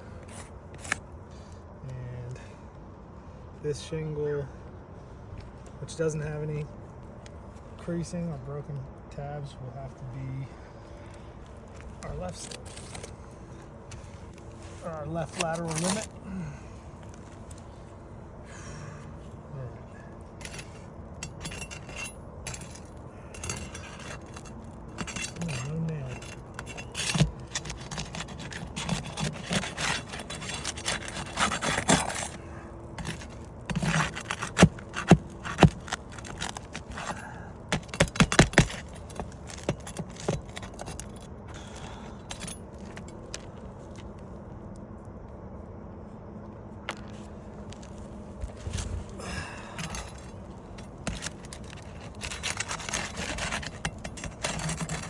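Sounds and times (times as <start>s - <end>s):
roof shingles scraping: 11.8s - 16.2s, 20.3s - 44.1s, 47.1s - 55.0s.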